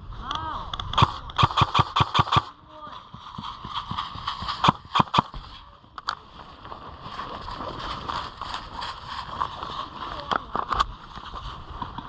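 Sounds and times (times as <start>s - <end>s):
sharp clicks: 0.7s - 2.6s, 4.4s - 5.4s.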